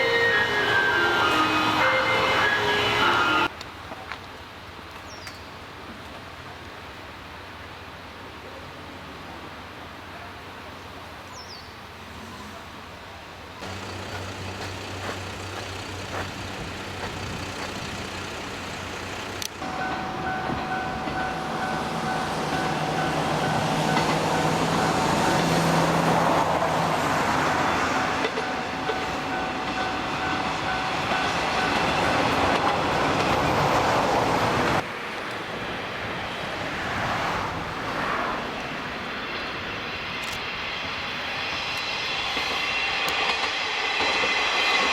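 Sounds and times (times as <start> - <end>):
steady high tone: 0.0 - 3.5, 19.6 - 33.3
diesel railcar engine: 0.0 - 5.0, 12.6 - 44.9
train wheels on rails: 13.6 - 44.9.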